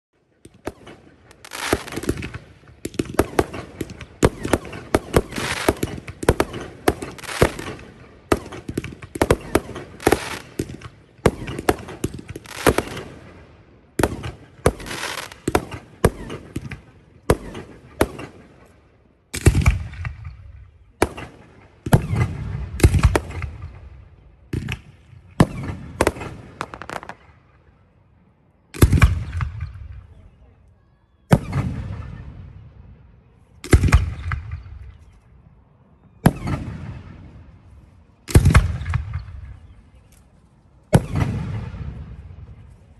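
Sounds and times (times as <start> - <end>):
fireworks bursts and crackles: 0.4 - 18.8, 19.4 - 27.7, 38.3 - 39.8, 40.8 - 42.9
deep firework booms: 41.0 - 42.5.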